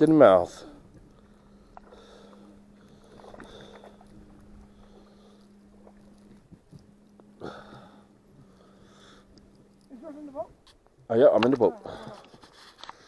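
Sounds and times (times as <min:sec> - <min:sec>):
faint steady hum: 0:00.0 - 0:13.0
water sloshing: 0:00.0 - 0:13.0.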